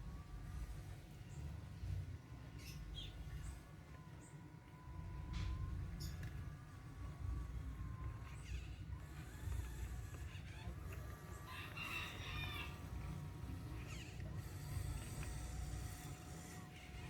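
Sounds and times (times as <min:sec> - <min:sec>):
rooster crowing: 0:11.2 - 0:13.4.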